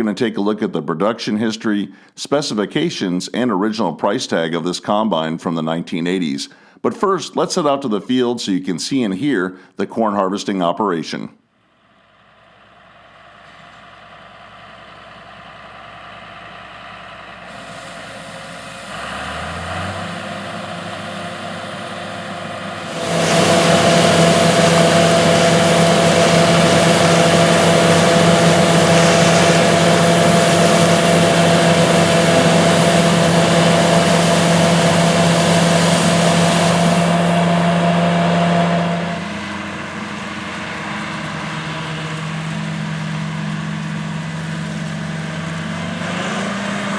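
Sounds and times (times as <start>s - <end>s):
combine engine and machinery: 12.1s - 46.9s.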